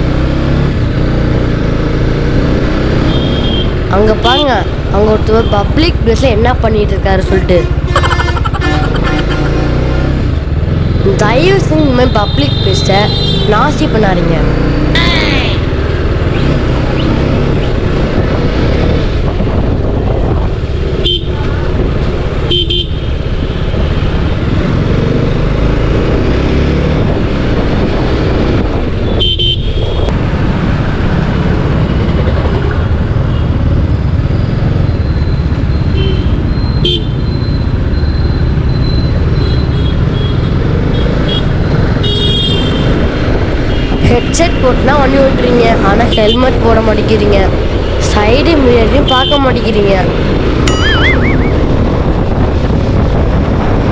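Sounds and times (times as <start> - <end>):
motorcycle engine and wind noise: 0.0 - 53.9
vehicle horns tooting: 3.0 - 4.6, 7.3 - 10.0, 11.5 - 13.8, 22.5 - 23.1, 29.0 - 30.1, 35.9 - 37.5, 39.3 - 43.0, 48.9 - 49.6.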